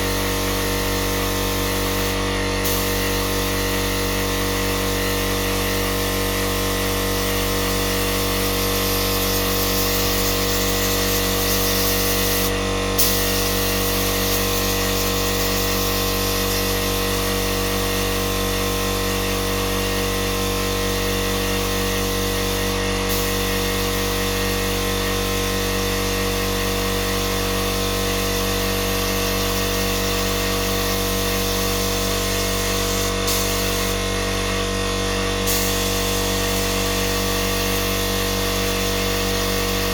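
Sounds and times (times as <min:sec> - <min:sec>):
heat gun running: 0:00.0 - 0:39.9.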